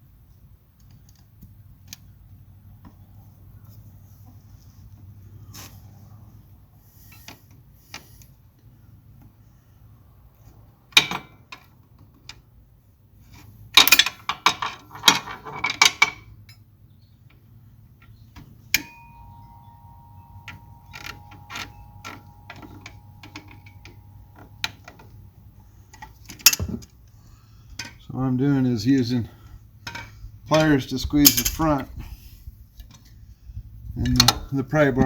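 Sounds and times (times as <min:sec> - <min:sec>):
metal tools clattering on clamp: 0:13.8 - 0:16.7, 0:26.0 - 0:26.9, 0:29.8 - 0:32.0.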